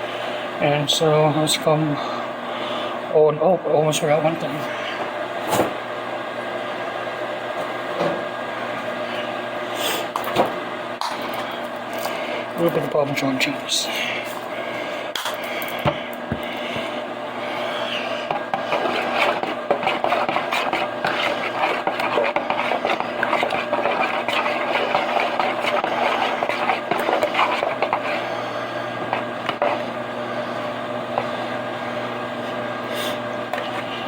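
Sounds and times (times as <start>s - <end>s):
microwave oven humming: 0.0s - 34.0s
utensil scraping food: 15.9s - 31.4s, 32.4s - 34.0s.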